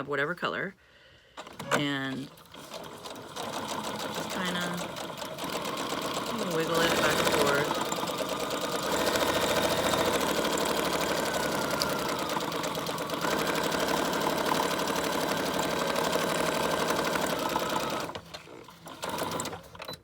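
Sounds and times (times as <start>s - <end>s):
sewing machine stitching: 1.4s - 20.0s.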